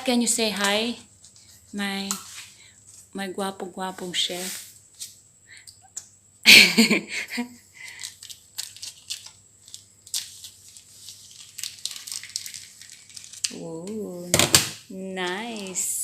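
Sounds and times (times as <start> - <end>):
crinkling and tearing: 7.9 - 14.1.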